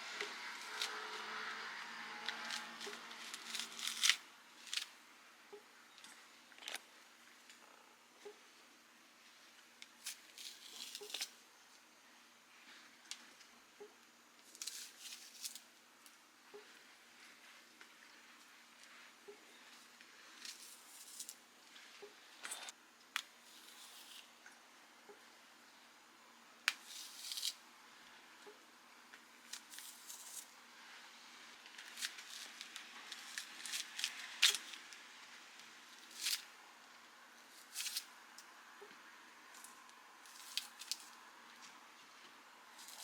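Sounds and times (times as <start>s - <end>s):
mushrooms torn by hand: 0.1s - 5.0s, 9.8s - 11.4s, 14.4s - 15.7s, 26.6s - 27.6s, 29.4s - 30.5s, 31.6s - 35.0s, 35.6s - 36.6s, 37.6s - 38.5s, 39.5s - 41.2s.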